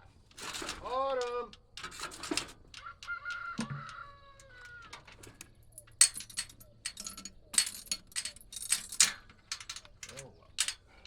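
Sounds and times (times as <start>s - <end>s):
rooster crowing: 2.8s - 5.1s
metallic clinks and jangles: 5.6s - 10.9s.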